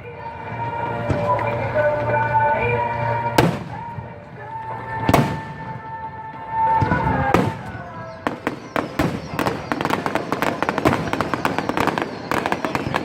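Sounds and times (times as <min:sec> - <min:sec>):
music with long held notes: 0:00.0 - 0:13.0
fireworks bangs with echoes: 0:03.4 - 0:04.2, 0:05.0 - 0:06.0, 0:06.6 - 0:13.0.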